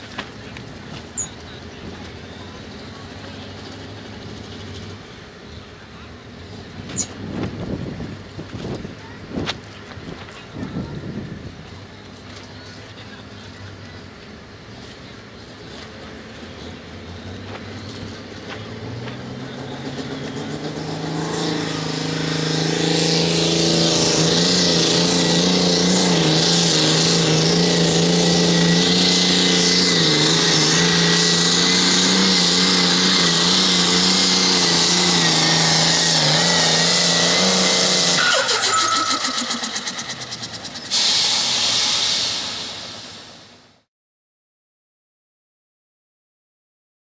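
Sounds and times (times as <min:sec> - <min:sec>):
tractor engine at full throttle: 0:00.0 - 0:43.8
sudden hiss: 0:40.8 - 0:43.6.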